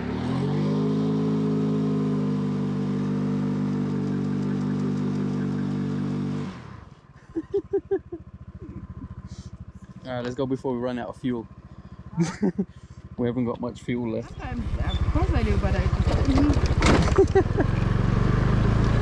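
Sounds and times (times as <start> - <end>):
scooter engine revving: 0.0 - 13.5, 14.1 - 19.0.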